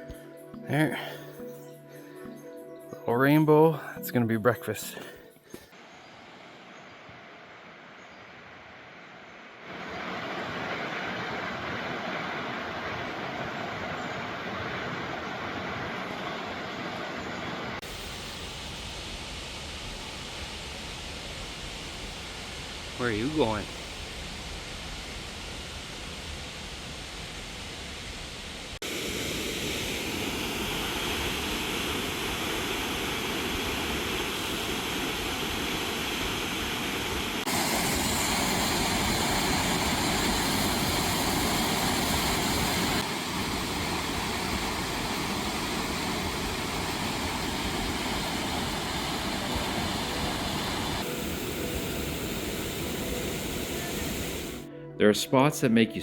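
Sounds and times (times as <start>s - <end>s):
waterfall rushing: 9.7s - 18.8s, 28.7s - 54.6s.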